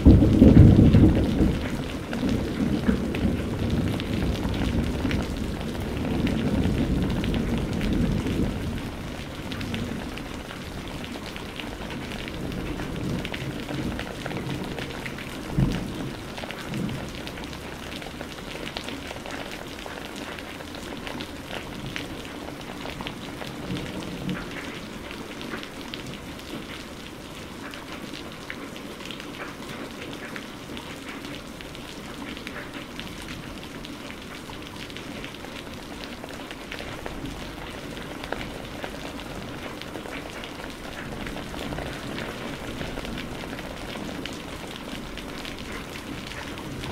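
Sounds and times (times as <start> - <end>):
thunder rumble: 0.0 - 18.2, 40.9 - 46.9.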